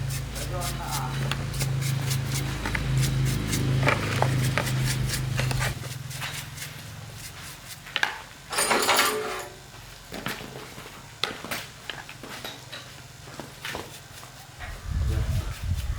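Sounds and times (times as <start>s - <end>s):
pulsing machine hum: 0.0s - 6.9s.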